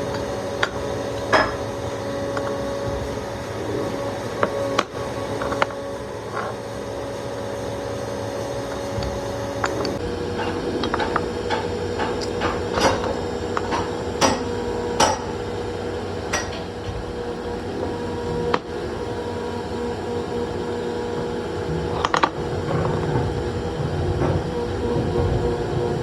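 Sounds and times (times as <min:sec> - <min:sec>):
workshop machinery humming: 0:00.0 - 0:26.0
sharp metallic knocks: 0:10.4 - 0:15.4.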